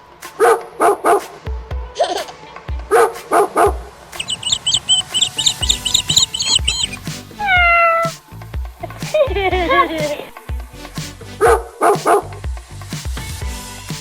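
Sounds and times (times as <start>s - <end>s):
background music with low beat: 0.0s - 14.0s
rapid high-pitched chirping: 4.2s - 8.1s.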